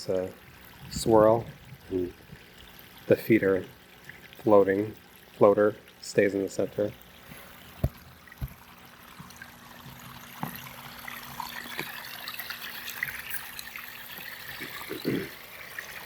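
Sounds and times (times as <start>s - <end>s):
waterfall trickling and splashing: 1.0s - 16.0s
soft knocks: 7.8s - 8.6s.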